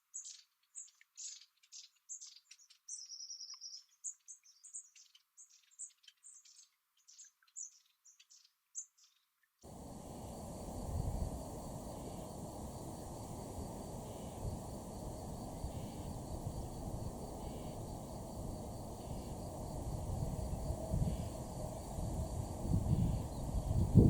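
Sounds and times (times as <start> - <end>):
low rumbling wind gusts: 9.7 - 24.0
steady hiss: 9.7 - 24.0.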